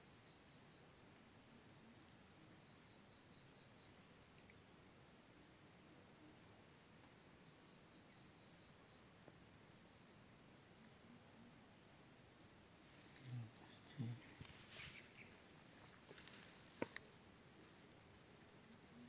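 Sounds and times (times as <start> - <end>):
lower insect trill: 0.0 - 19.0.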